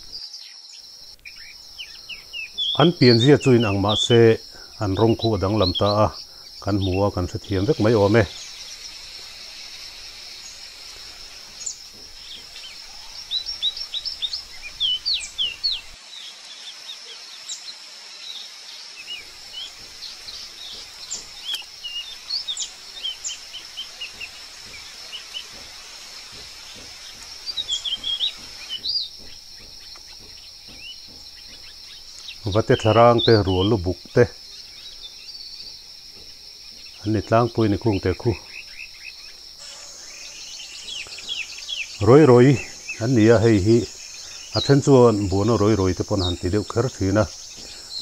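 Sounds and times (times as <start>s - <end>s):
forest birds chirping: 0.0s - 48.0s
high-pitched insect drone: 19.0s - 48.0s.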